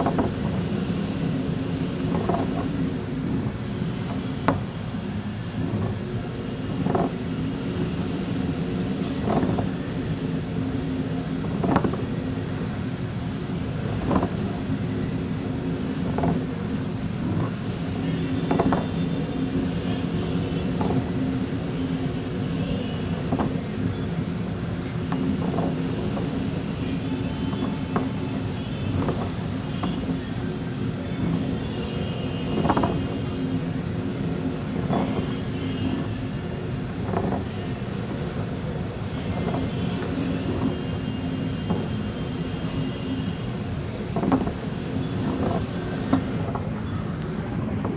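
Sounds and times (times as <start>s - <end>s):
engine droning hum: 0.0s - 47.9s
faint knocks and rattles: 44.2s - 44.6s.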